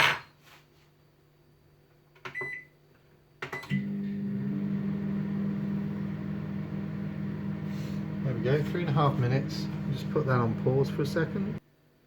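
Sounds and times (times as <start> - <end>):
microwave keypad beep: 2.3 - 2.7
microwave oven humming: 3.6 - 11.6.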